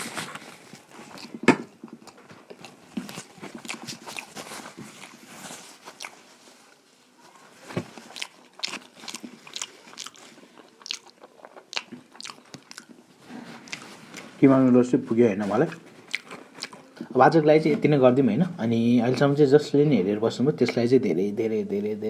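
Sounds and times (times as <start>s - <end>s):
person chewing noodles: 0.0s - 6.5s, 7.8s - 14.4s, 15.7s - 17.2s.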